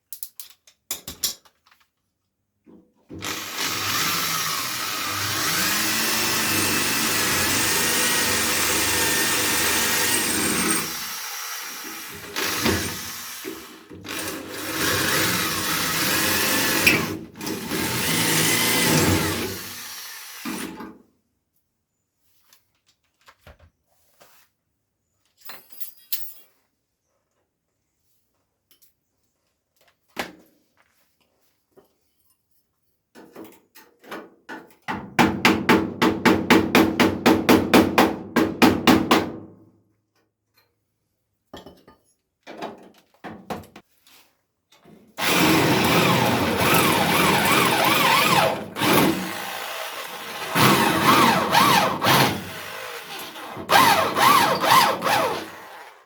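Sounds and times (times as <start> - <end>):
power tool whining: 3.2 - 20.8, 45.2 - 56.0.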